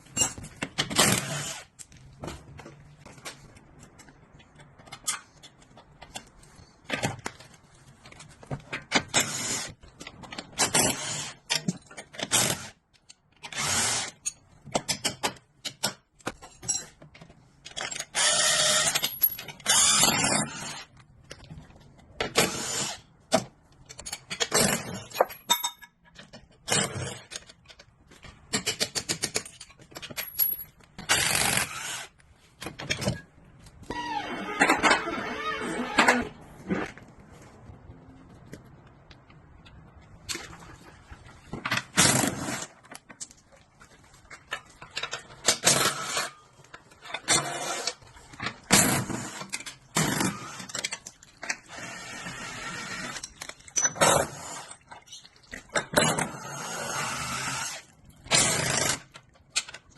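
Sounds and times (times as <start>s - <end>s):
metal tools clinking and scraping: 25.0s - 26.3s.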